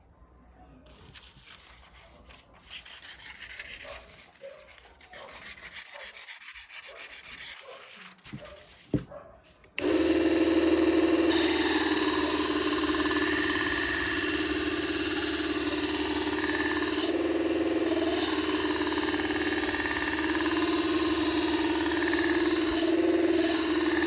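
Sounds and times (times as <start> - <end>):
rubbing and scraping strokes: 0.9 - 9.6.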